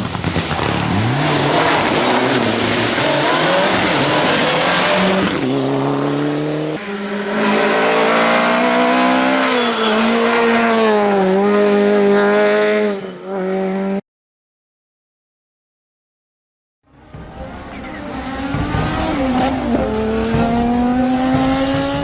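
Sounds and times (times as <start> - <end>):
tyre and road noise: 0.0 - 13.8
rally car engine at full throttle: 0.0 - 14.0, 16.9 - 22.0.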